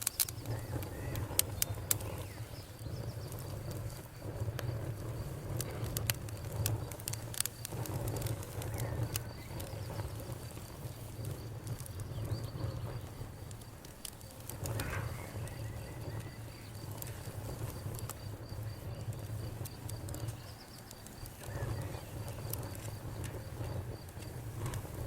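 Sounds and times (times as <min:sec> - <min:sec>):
insect chirping: 0:00.0 - 0:24.9
campfire crackling and popping: 0:00.0 - 0:25.0
low fire rumble: 0:00.0 - 0:25.0.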